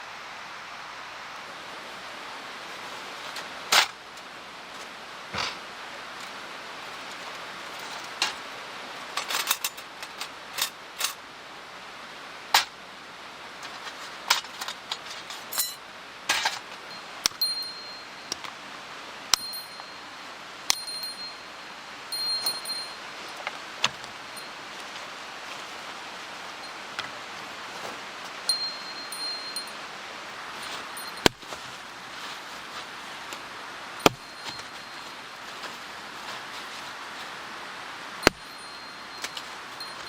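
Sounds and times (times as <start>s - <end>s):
high metallic ringing: 15.4s - 15.8s, 16.9s - 18.4s, 19.3s - 23.5s, 24.3s - 24.7s, 28.4s - 31.3s, 33.9s - 35.9s, 38.2s - 40.0s.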